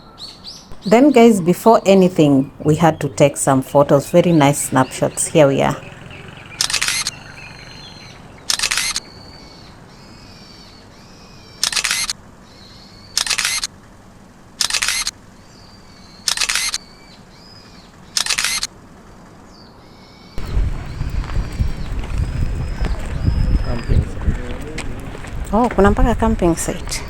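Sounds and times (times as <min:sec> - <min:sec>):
camera shutter: 0:06.6 - 0:07.2, 0:08.4 - 0:09.1, 0:11.6 - 0:12.2, 0:13.2 - 0:13.7, 0:14.6 - 0:15.2, 0:16.2 - 0:16.8, 0:18.2 - 0:18.7.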